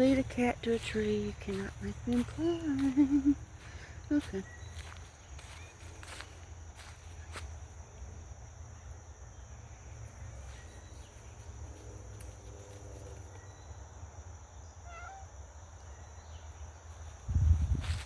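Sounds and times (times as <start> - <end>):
high insect drone: 0.0 - 18.0
cat meowing: 14.8 - 15.3.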